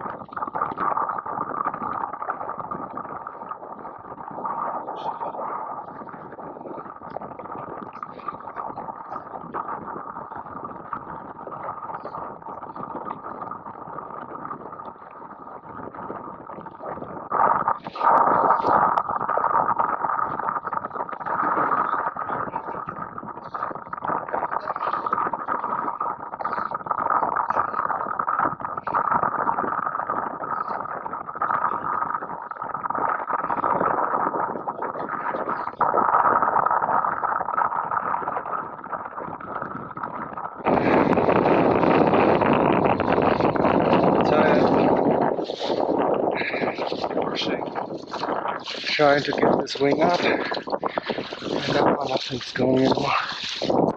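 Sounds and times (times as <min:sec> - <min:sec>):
wind and water rushing: 0:40.6 - 0:53.9.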